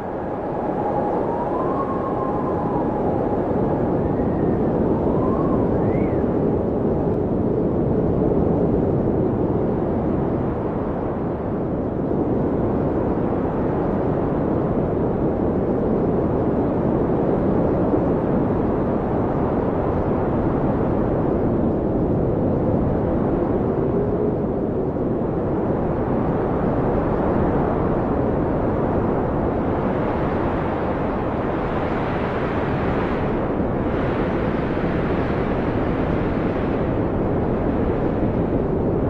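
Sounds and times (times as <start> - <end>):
wind whistling: 0.0 - 7.8, 22.2 - 39.0
howling blizzard wind: 0.0 - 39.0.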